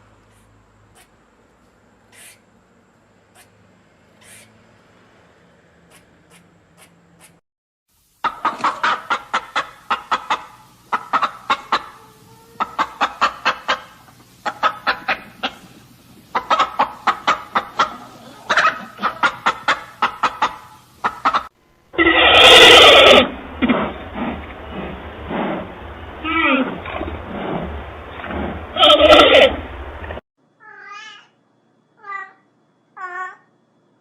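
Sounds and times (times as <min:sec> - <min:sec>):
chickens clucking: 0:08.2 - 0:21.6
loud chicken call: 0:16.4 - 0:23.4.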